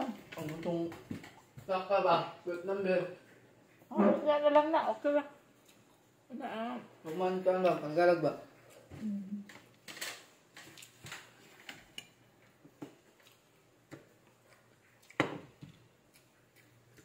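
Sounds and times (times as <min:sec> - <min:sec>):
person chewing: 0:10.5 - 0:17.0.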